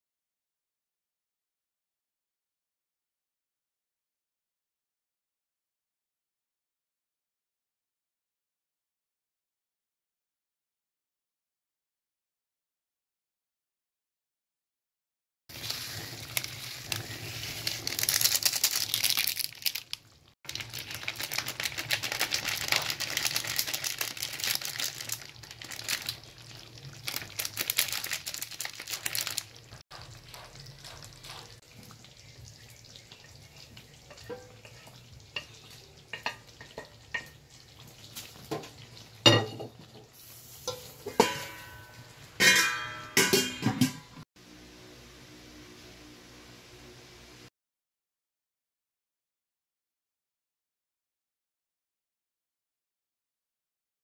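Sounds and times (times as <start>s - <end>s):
food sizzling in a wok: 15.5s - 47.5s
wooden spoon stirring: 20.6s - 38.9s
metal pot lid clattering: 38.5s - 44.2s.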